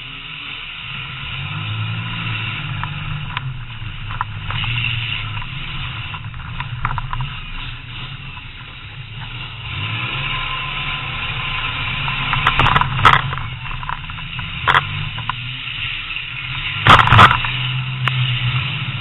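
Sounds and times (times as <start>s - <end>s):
car engine running: 0.0s - 19.0s
sharp clicks and knocks: 2.7s - 9.5s, 11.7s - 15.6s, 16.8s - 18.2s.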